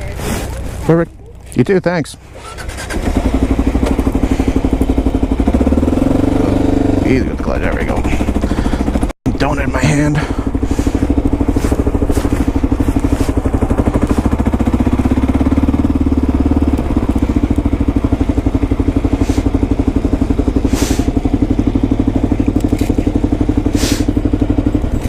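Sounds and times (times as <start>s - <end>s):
motorcycle engine running: 0.0s - 25.0s
short hisses: 20.6s - 21.2s, 23.7s - 24.2s.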